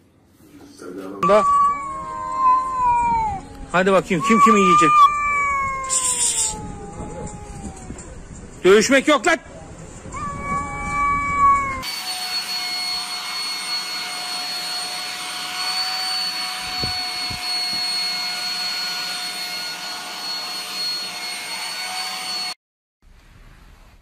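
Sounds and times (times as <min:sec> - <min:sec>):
small electric motor whining: 0:11.8 - 0:22.6.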